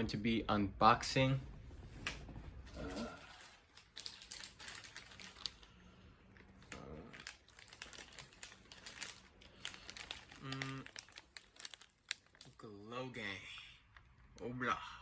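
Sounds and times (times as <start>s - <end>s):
packaging crinkling and rustling: 2.0s - 12.9s.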